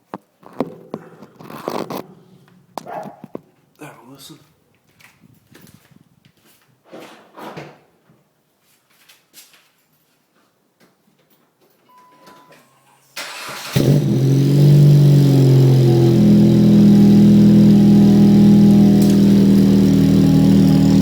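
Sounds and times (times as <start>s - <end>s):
car engine idling: 13.3s - 21.0s.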